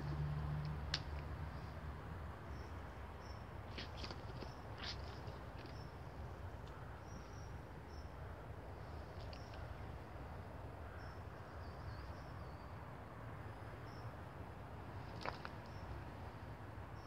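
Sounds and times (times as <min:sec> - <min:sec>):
small birds chirping: 0:02.5 - 0:09.9.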